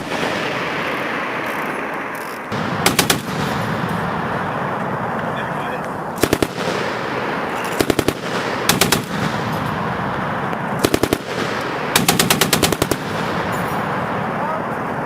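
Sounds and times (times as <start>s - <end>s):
machine gun firing bursts: 2.5s - 4.4s, 6.2s - 14.2s.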